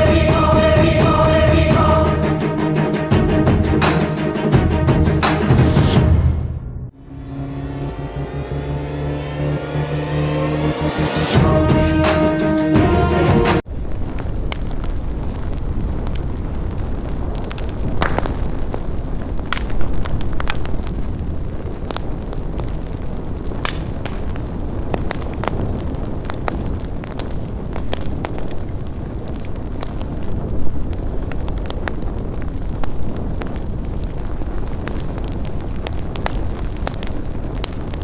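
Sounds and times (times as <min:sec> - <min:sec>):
fire burning with crackles: 0:13.6 - 0:38.0.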